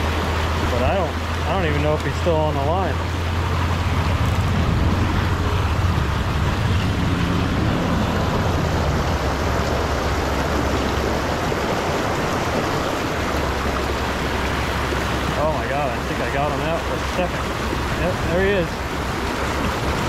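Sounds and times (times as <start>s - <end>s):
wind buffeting microphone: 2.7s - 20.0s
low rumble: 2.8s - 14.4s.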